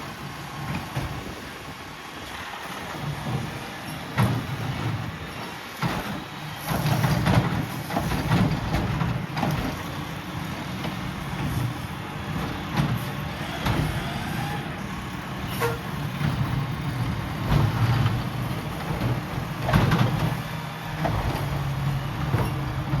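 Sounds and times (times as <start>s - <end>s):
garbage truck engine running: 0.0s - 23.0s
sharp knocks and clanks: 15.5s - 23.0s.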